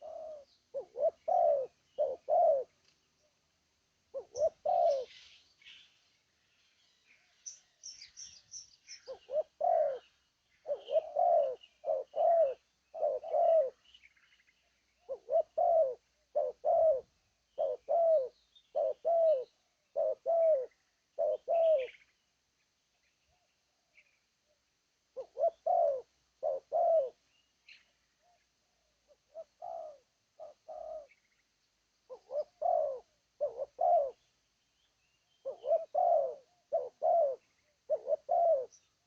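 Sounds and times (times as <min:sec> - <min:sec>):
dove cooing: 0:00.0 - 0:02.9, 0:04.1 - 0:05.4, 0:09.0 - 0:13.9, 0:15.0 - 0:22.0, 0:25.1 - 0:27.2, 0:28.2 - 0:31.2, 0:32.1 - 0:34.3, 0:35.4 - 0:38.9
small birds chirping: 0:00.0 - 0:03.5, 0:04.1 - 0:24.6, 0:25.2 - 0:39.0.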